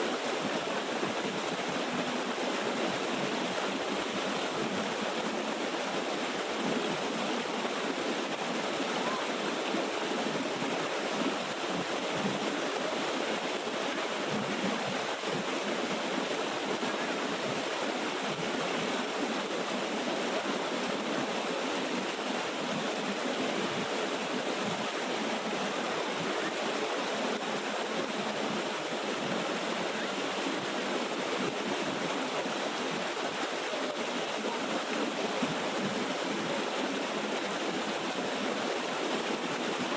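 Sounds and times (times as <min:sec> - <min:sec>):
small waterfall rushing: 0:00.0 - 0:39.9.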